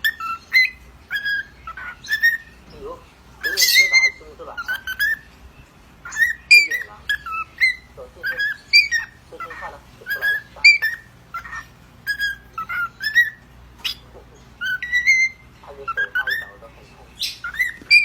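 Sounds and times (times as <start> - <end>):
parrot raspy chattering calls: 0.0 - 18.0
parrot whistling chirpy notes: 3.4 - 5.3, 10.1 - 14.0, 14.6 - 16.6, 17.2 - 18.0.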